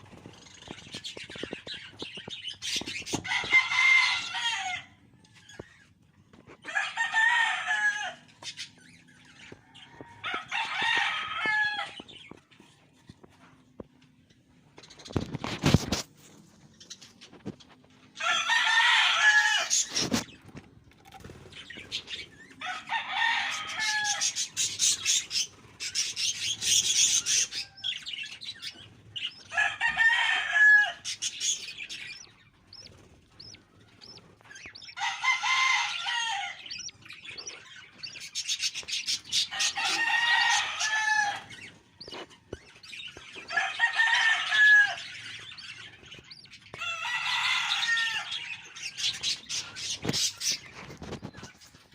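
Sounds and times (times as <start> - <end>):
chicks raspy begging calls: 21.5 - 50.8.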